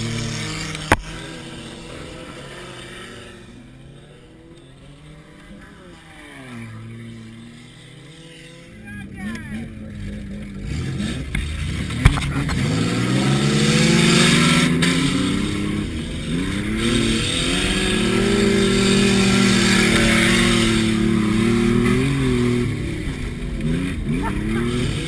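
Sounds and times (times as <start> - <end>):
car engine revving: 0.0 - 25.0
steady rushing noise: 9.6 - 25.0.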